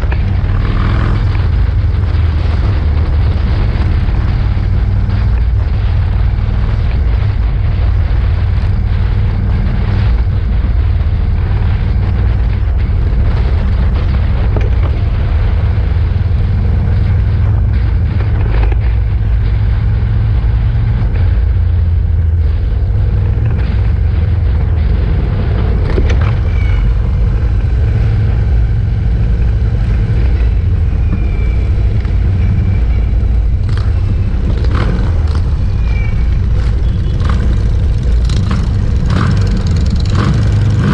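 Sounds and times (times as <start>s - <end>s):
motorcycle engines rumbling: 0.0s - 40.9s
clicks and pops: 23.2s - 28.4s.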